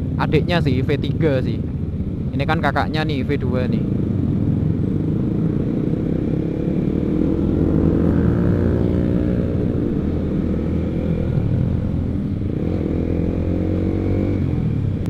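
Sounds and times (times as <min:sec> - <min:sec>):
motorcycle engine revving: 0:03.8 - 0:15.0.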